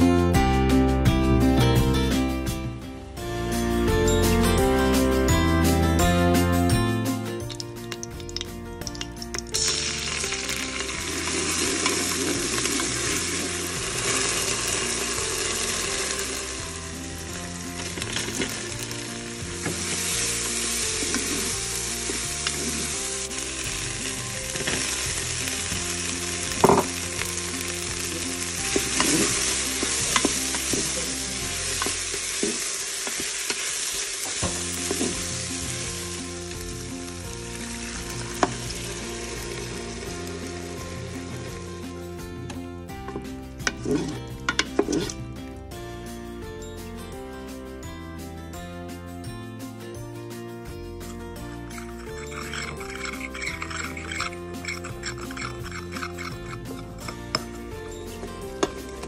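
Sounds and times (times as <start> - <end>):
vegetables sizzling in hot oil: 7.5 - 42.0, 51.7 - 56.8
spatula stirring: 27.9 - 32.6, 51.7 - 57.7.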